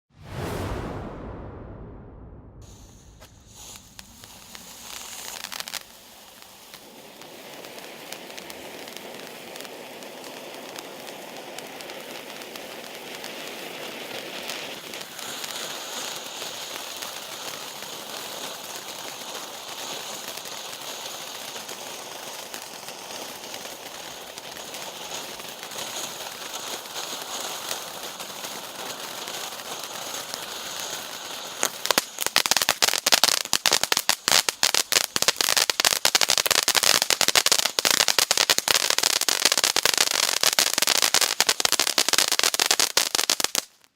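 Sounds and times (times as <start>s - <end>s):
firework hissing: 2.6s - 43.9s
firework sparks crackling: 2.6s - 43.9s.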